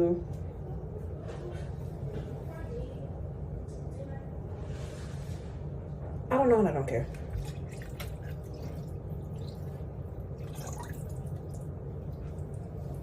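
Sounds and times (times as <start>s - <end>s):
steady low hum: 0.0s - 13.0s
water dripping and trickling: 7.2s - 13.0s.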